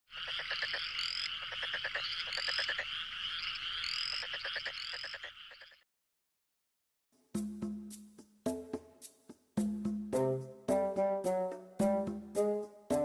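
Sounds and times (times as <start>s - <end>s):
frogs croaking in chorus: 0.1s - 5.8s.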